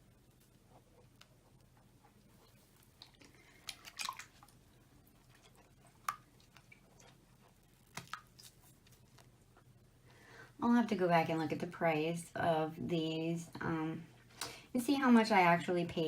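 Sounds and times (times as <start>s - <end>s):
water dripping into bath: 3.0s - 4.6s, 5.3s - 7.1s.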